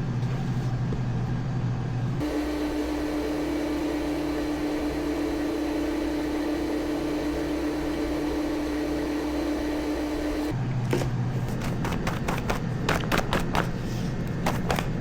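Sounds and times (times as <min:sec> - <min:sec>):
appliance motor humming: 0:02.2 - 0:10.6.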